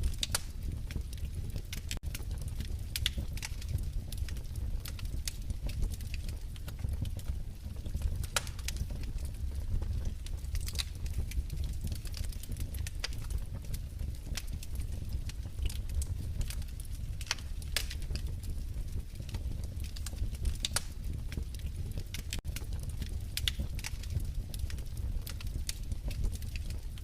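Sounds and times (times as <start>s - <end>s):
low rumble of flames: 0.0s - 27.0s
wood fire popping and snapping: 0.0s - 27.0s.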